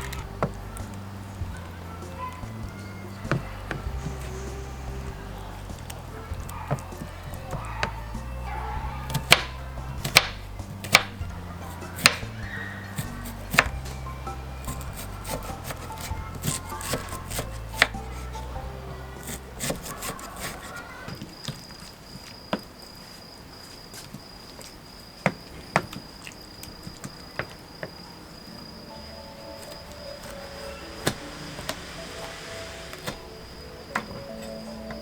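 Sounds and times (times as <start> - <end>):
background music: 0.0 - 21.1, 28.2 - 35.0
night insects trilling: 10.6 - 35.0.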